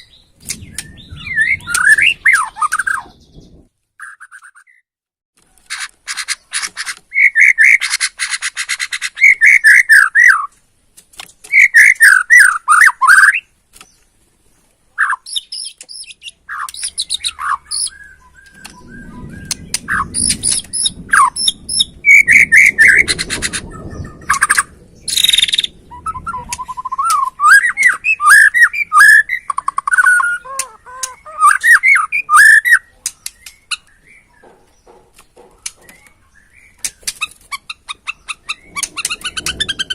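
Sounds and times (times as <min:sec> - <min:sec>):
bird singing whistled phrases: 0:00.0 - 0:04.8, 0:11.5 - 0:13.5, 0:15.0 - 0:34.3
low rumble: 0:00.1 - 0:03.7, 0:17.9 - 0:27.7, 0:38.4 - 0:39.9.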